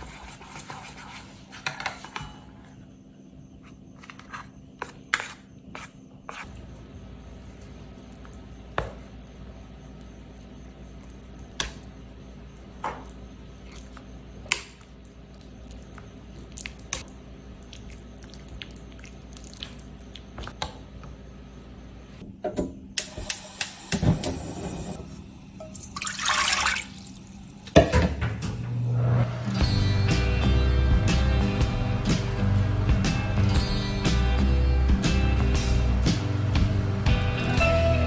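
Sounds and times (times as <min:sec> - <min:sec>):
batter squelching: 0:05.2 - 0:20.6
steady low hum: 0:23.9 - 0:37.6.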